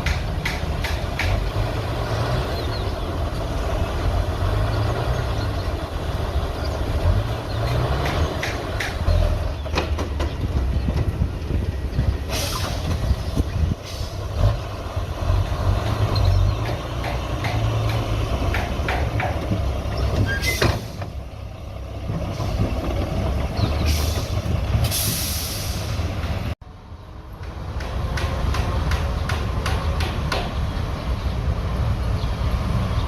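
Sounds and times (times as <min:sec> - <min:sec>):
metallic clanks and knocks: 0:00.0 - 0:01.5, 0:16.1 - 0:21.2
diesel machinery rumbling: 0:00.0 - 0:33.0
air hissing: 0:12.3 - 0:13.2, 0:23.9 - 0:26.2.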